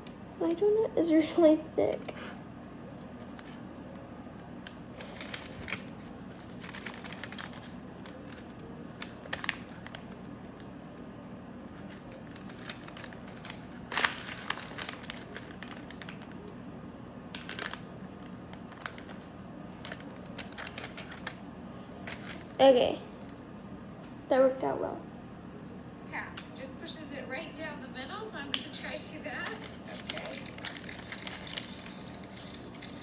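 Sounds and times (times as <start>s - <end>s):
parchment paper rustling: 2.1s - 10.6s, 11.6s - 16.6s, 17.3s - 21.4s, 22.1s - 23.2s, 29.4s - 33.0s.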